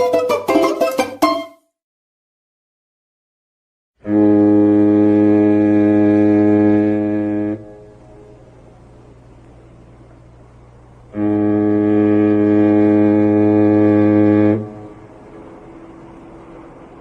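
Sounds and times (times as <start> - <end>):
ship's horn blast: 4.0 - 9.0, 11.0 - 17.0.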